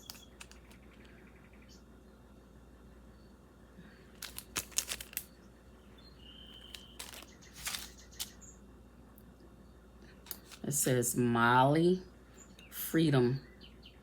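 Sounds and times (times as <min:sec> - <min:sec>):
packaging crinkling and clicking: 0:00.0 - 0:01.1, 0:04.1 - 0:05.3, 0:06.6 - 0:08.3, 0:10.3 - 0:10.6.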